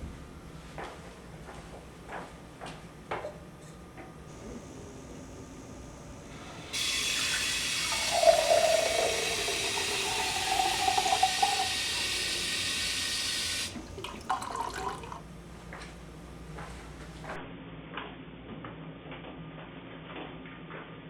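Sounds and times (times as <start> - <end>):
water gushing loudly: 4.3 - 15.3.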